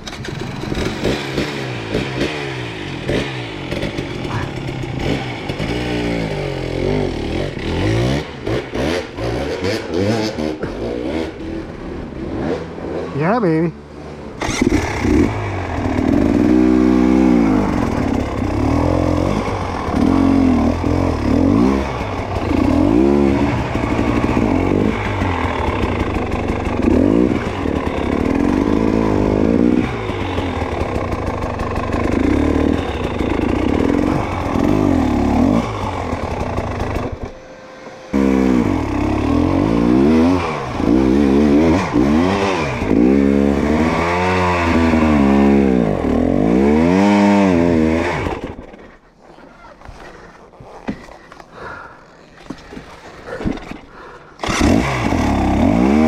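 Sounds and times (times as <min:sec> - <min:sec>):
clatter: 0:00.0 - 0:06.4, 0:17.6 - 0:37.4
dirt bike engine revving: 0:00.0 - 0:49.1, 0:53.2 - 0:56.0.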